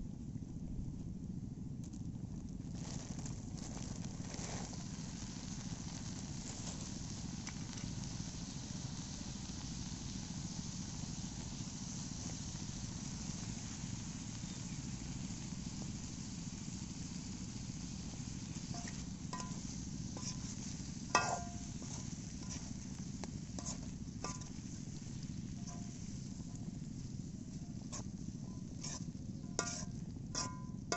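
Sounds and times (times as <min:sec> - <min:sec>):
steady low rumble: 0:00.0 - 0:30.9.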